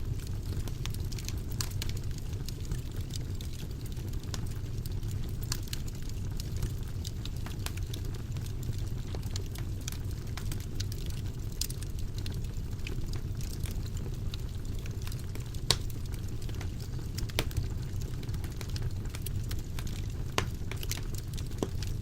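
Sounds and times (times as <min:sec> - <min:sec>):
fire crackling in a fireplace: 0:00.0 - 0:22.0
fire popping: 0:00.0 - 0:22.0.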